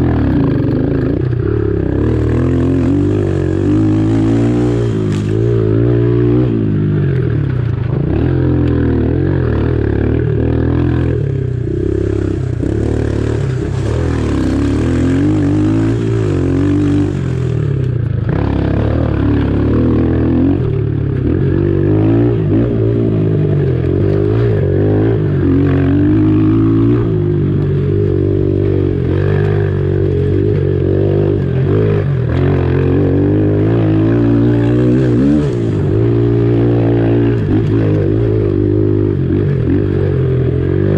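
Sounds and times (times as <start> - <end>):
small motorbike engine revving: 0.0 - 28.1.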